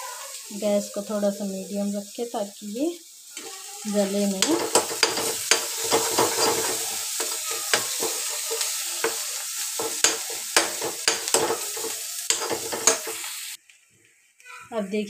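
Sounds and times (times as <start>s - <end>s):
paste sizzling in hot oil: 0.0s - 13.6s
steel ladle scraping and clicking: 4.4s - 9.2s, 9.8s - 13.3s.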